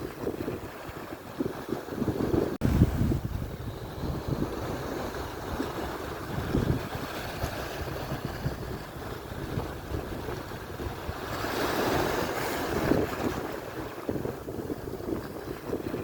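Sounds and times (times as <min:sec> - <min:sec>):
surf washing onto shore: 0:00.0 - 0:16.0
wind buffeting microphone: 0:00.0 - 0:16.0
wave breaking: 0:01.8 - 0:08.8.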